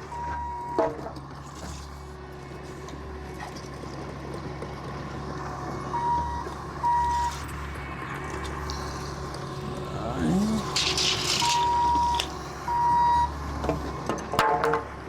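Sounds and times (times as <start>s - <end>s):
vehicle backup alarm beeps: 0.0s - 1.1s, 5.9s - 7.5s, 11.4s - 14.1s
engine droning: 0.0s - 15.0s.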